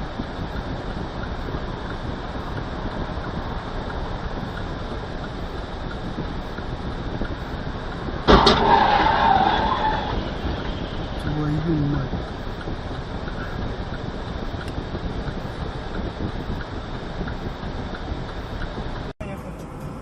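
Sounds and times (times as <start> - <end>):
car road and engine noise: 0.0 - 20.0
car crash bang: 8.3 - 11.2.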